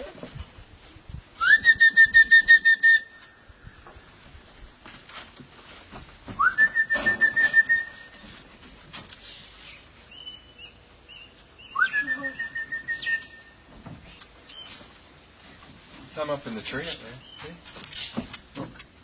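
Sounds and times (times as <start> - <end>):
person whistling: 1.4 - 3.2, 6.4 - 8.2, 11.8 - 13.4.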